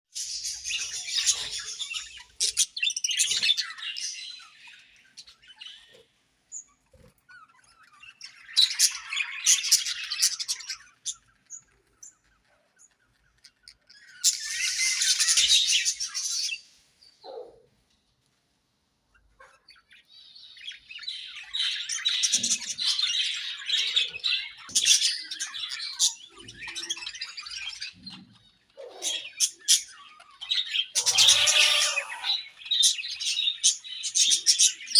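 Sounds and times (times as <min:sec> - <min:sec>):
budgerigars chirping and warbling: 0:00.2 - 0:17.4, 0:19.1 - 0:34.9
bird squawks: 0:21.4 - 0:34.9.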